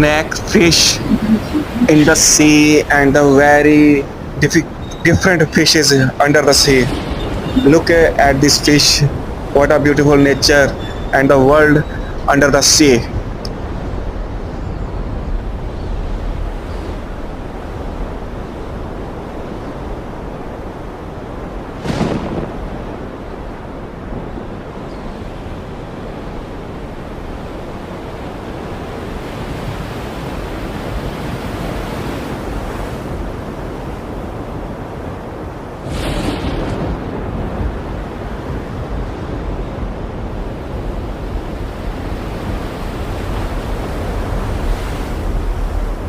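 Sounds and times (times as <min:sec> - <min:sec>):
sea rushing: 0:00.0 - 0:46.0
wind: 0:00.0 - 0:46.0.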